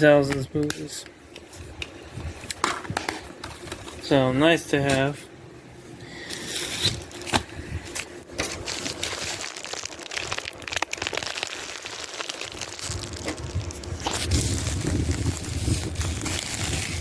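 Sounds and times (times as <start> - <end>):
packaging crinkling: 6.8 - 17.0.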